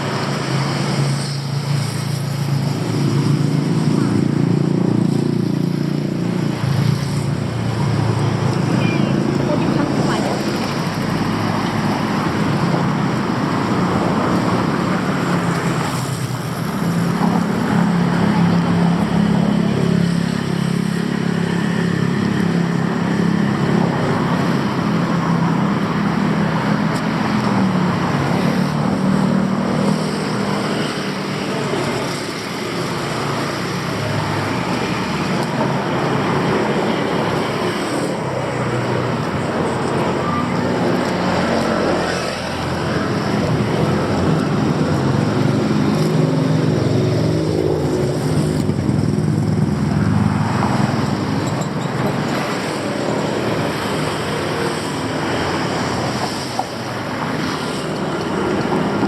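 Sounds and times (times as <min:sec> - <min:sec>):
street noise: 0:00.0 - 0:59.0
vehicle engines running: 0:00.0 - 0:59.0.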